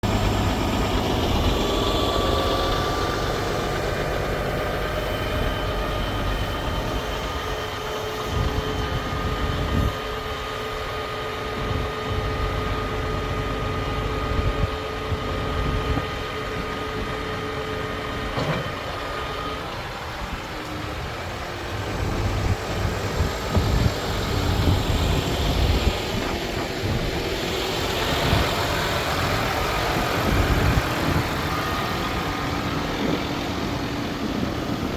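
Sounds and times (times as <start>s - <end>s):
truck diesel engine idling: 0.0s - 34.9s.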